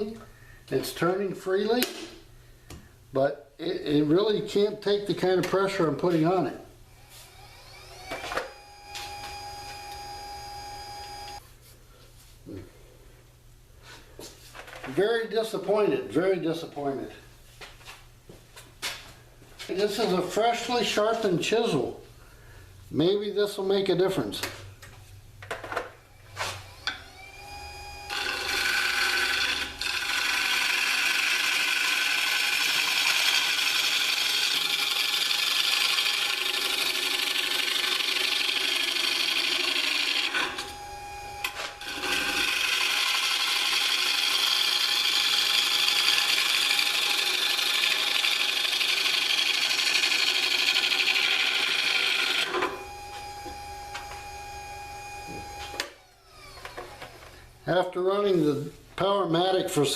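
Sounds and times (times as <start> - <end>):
lathe motor whine: 7.0 - 11.4, 26.3 - 57.4
gouge cutting wood on lathe: 28.1 - 40.7, 41.4 - 52.7.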